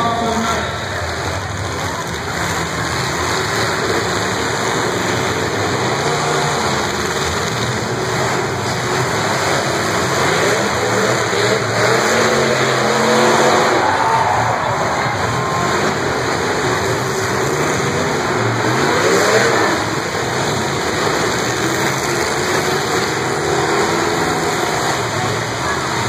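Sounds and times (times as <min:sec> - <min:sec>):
car engines revving hard: 0:00.0 - 0:26.0.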